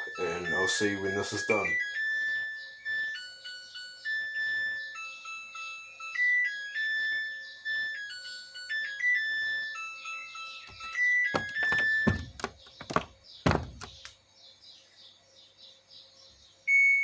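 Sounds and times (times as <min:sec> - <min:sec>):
washing machine chime melody: 0:00.0 - 0:14.0
knocks and thuds: 0:10.7 - 0:14.1.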